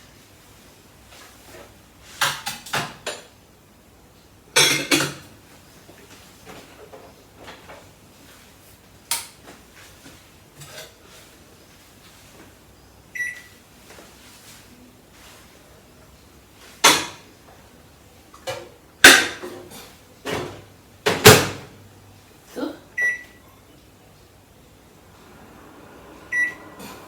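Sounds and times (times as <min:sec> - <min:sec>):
microwave keypad beep: 0:13.2 - 0:13.6, 0:23.0 - 0:23.6, 0:26.3 - 0:26.6.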